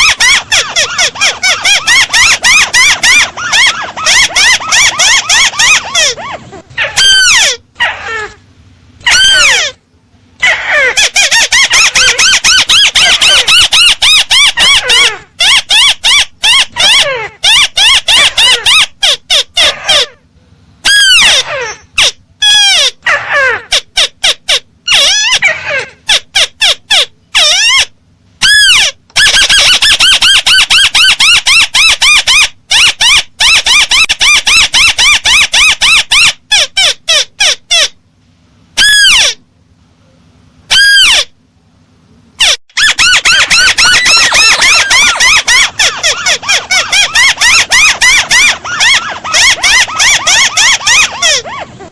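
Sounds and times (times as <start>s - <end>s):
crake bird calls: 0.0s - 8.3s, 42.4s - 51.8s.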